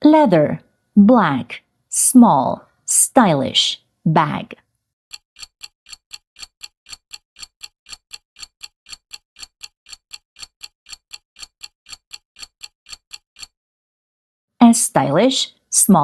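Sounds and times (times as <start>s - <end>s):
clock ticking: 5.1s - 13.5s.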